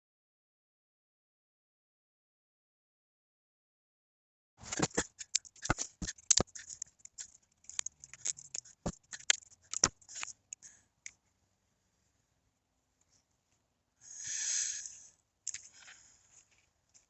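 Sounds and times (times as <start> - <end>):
sharp clicks snips and scrapes: 4.7 - 11.2.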